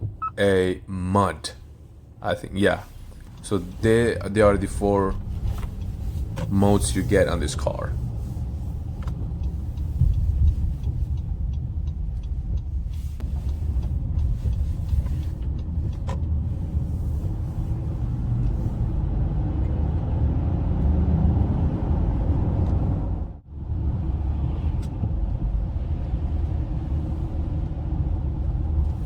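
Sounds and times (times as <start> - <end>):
car engine and tyre rumble: 0.0 - 29.0.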